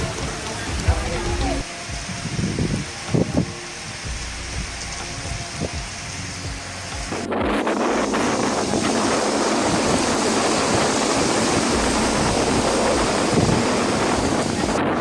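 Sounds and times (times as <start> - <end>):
storm rushing noise: 0.0 - 15.0
wind buffeting microphone: 0.0 - 15.0.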